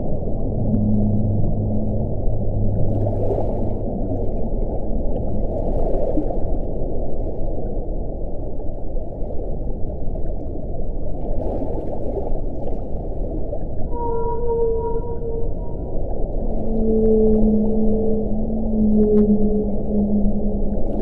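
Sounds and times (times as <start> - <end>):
low wind rushing: 0.0 - 5.0.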